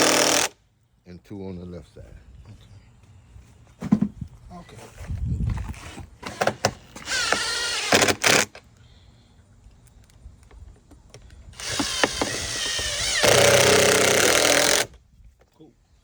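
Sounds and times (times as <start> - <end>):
impact driver driving screws: 0.0 - 0.6, 5.8 - 8.6, 11.6 - 15.0.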